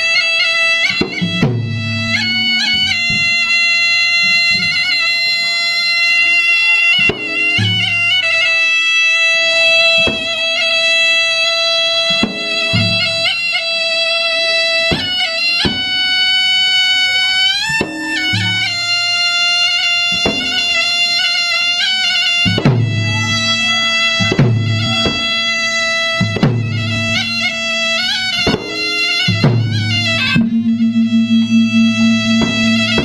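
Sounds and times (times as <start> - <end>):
reed pipe melody: 0.0 - 33.0
sharp drum strokes: 0.8 - 5.4, 7.0 - 8.1, 22.4 - 33.0
deep drum thumps: 1.0 - 4.8, 26.2 - 33.0.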